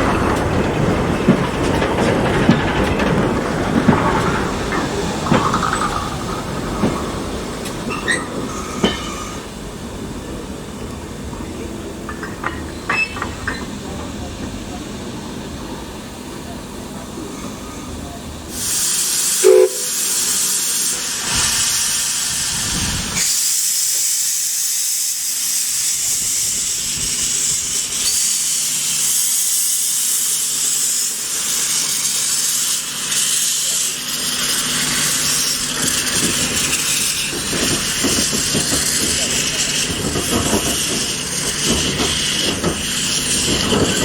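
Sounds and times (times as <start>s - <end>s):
locomotive steam hissing: 0.0s - 44.0s
steam whistle toot: 18.6s - 20.5s.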